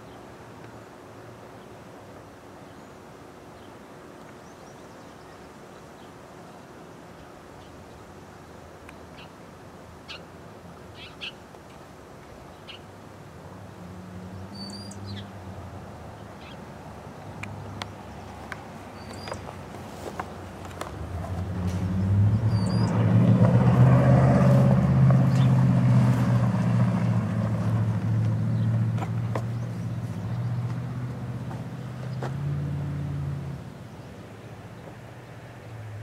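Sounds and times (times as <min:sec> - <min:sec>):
high bird chirps: 0:22.4 - 0:23.0.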